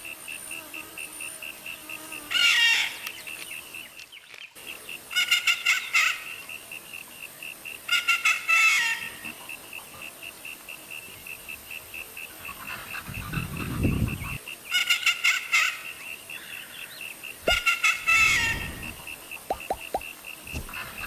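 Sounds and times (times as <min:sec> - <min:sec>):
loud bird calls: 0:05.1 - 0:06.5, 0:12.4 - 0:21.0.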